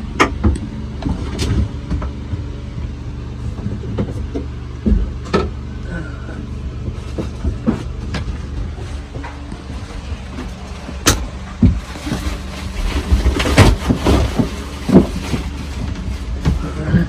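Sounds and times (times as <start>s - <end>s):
knocks and clatters: 6.9s - 17.0s.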